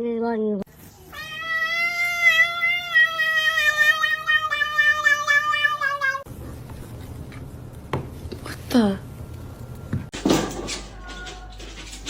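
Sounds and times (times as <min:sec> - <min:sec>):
cat yowling: 0:01.1 - 0:06.3.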